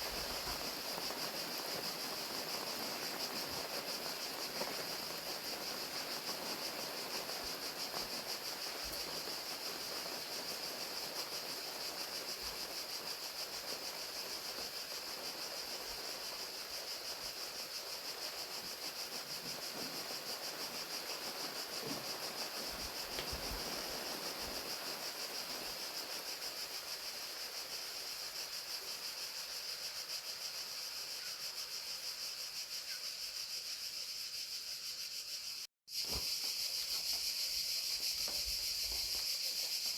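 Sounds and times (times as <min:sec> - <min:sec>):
crickets chirping: 0:00.0 - 0:39.9
falling rain hiss: 0:00.0 - 0:39.9.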